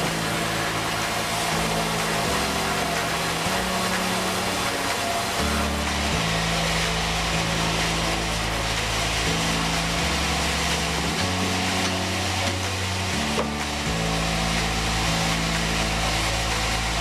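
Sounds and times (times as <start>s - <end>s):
background music with bass: 0.0s - 17.0s
saw cutting timber: 0.0s - 17.0s.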